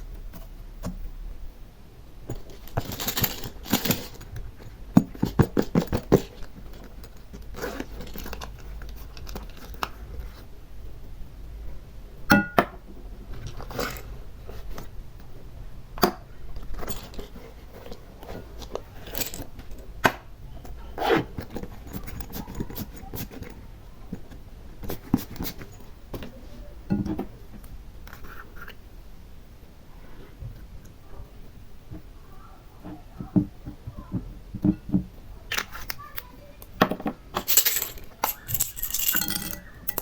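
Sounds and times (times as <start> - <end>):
scraping and rustling: 2.2 - 10.6, 16.5 - 19.9, 20.5 - 28.8, 37.2 - 40.0.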